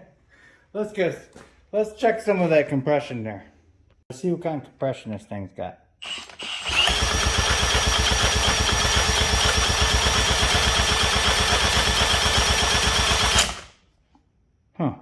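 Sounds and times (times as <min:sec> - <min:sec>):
electric drill whine: 0:06.0 - 0:13.8
outboard engine cranking pulses: 0:06.6 - 0:13.7.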